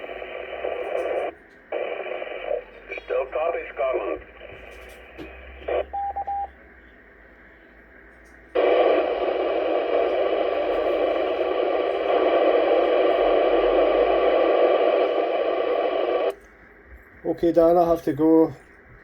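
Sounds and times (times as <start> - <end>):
radio static hiss: 0.0 - 16.4
radio roger beeps: 0.2 - 6.6, 8.6 - 16.4.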